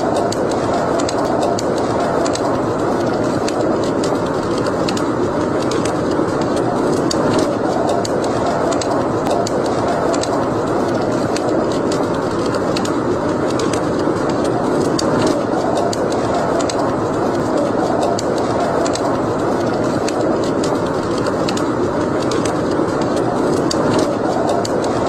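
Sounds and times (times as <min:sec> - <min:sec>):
wood fire burning: 0:00.0 - 0:25.0.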